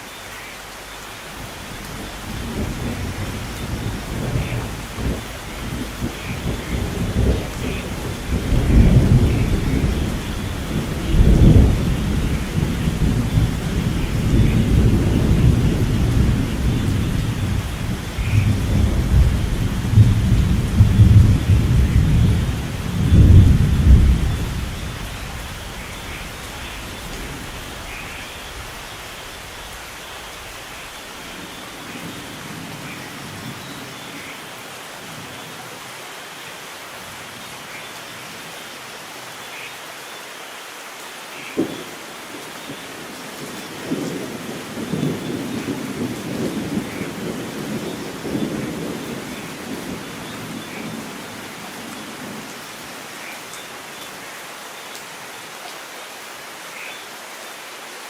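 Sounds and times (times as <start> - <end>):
steady rain: 0.0 - 58.0
thunder rumbling: 1.4 - 33.6, 41.6 - 52.5.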